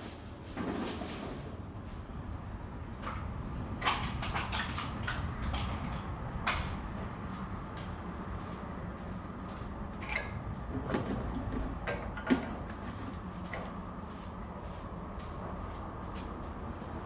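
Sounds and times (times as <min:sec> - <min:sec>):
clicks and knocks of tools: 0:03.0 - 0:06.9.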